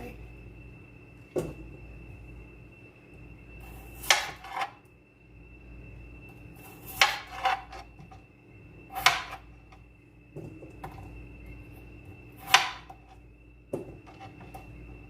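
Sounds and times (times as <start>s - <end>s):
knife chopping on cutting board: 12.4s - 12.9s.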